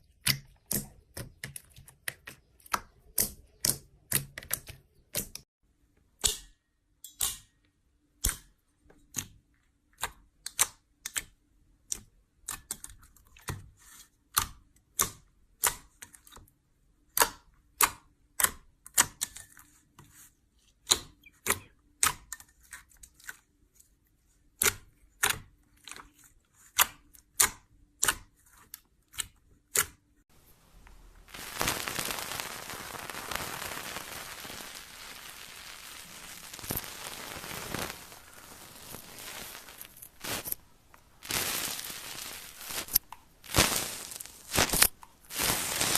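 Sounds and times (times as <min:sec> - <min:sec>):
dense crackling hiss: 0:30.3 - 0:45.9.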